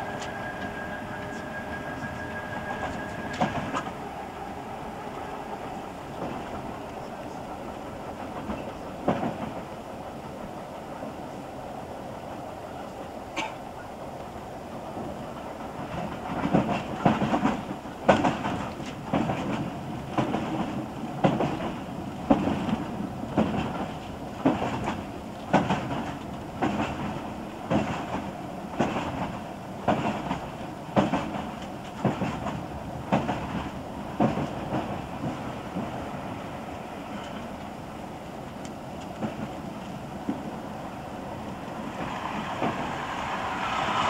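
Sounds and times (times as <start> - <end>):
train rumble: 0.0 - 44.0
train wheels clacking over rail joints: 8.1 - 9.7, 15.6 - 36.0, 41.9 - 44.0.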